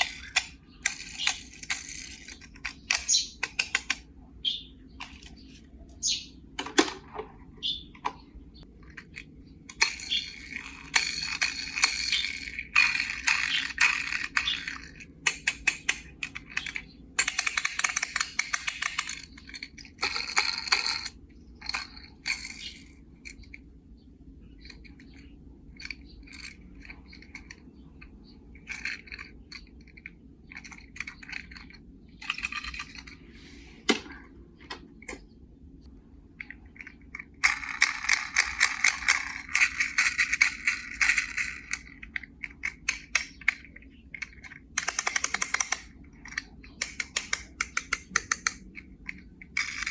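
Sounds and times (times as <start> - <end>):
toy cars clicking and clinking: 0.0 - 4.0, 8.8 - 23.6, 24.5 - 33.4, 36.4 - 49.9
toy cars rattling in plastic case: 9.7 - 22.8, 28.6 - 33.2, 36.8 - 49.9.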